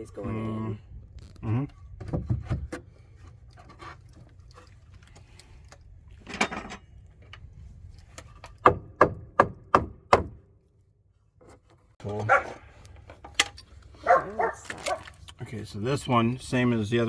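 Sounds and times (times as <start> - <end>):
hammer knocking on wood: 8.6 - 10.4.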